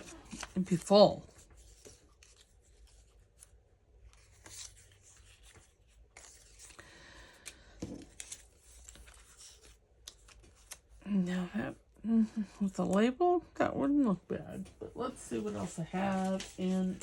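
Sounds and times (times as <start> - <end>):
paper rustling: 0.0 - 11.0, 14.5 - 17.0.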